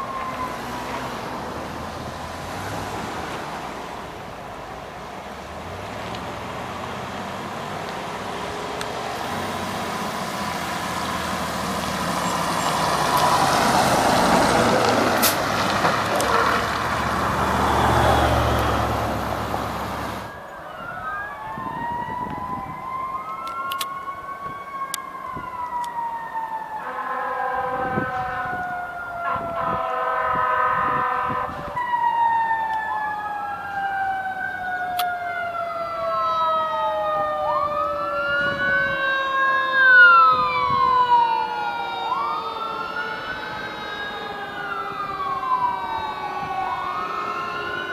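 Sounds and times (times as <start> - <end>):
fire engine passing: 0.0 - 47.9
sirens wailing: 0.0 - 47.9
horn blasts: 26.8 - 28.6, 29.2 - 31.6.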